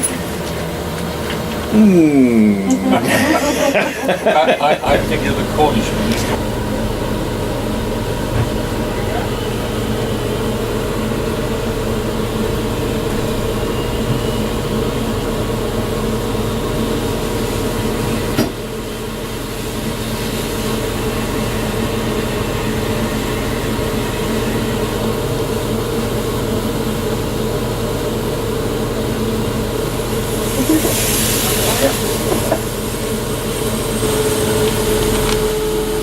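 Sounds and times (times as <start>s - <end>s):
train rumbling: 2.7s - 26.9s, 28.4s - 36.0s.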